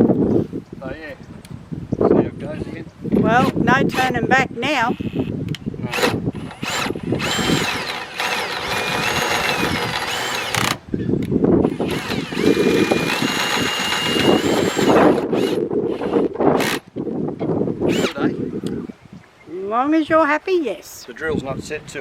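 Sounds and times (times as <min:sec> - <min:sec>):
power drill motor whining: 0:05.9 - 0:10.8, 0:11.6 - 0:16.9, 0:17.9 - 0:18.8.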